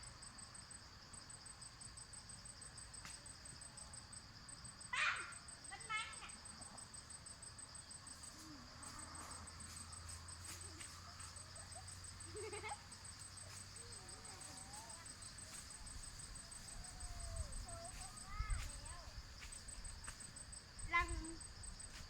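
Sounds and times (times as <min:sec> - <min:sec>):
continuous high insect drone: 0:00.0 - 0:22.0
insects chirping: 0:00.0 - 0:22.0.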